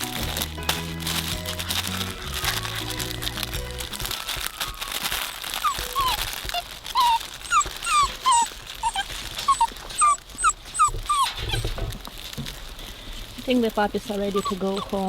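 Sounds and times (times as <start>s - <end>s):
rustling crackly noise: 0.0s - 15.0s
puppy whining: 1.1s - 12.1s, 14.1s - 15.0s.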